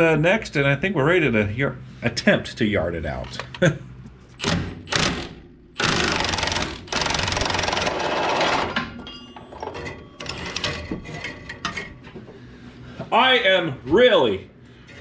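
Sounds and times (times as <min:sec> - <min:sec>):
power tool rattling: 0:04.4 - 0:09.0
metal tools clicking and clanking: 0:07.1 - 0:12.2.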